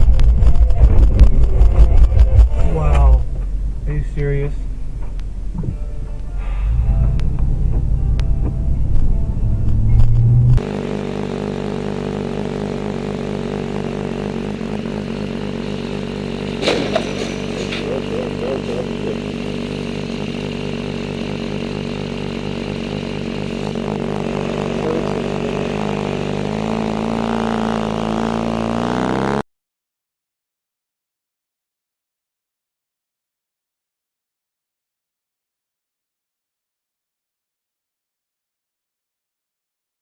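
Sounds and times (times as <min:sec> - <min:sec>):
vehicle engine running: 0:00.0 - 0:29.4
sharp knock: 0:16.6 - 0:17.8.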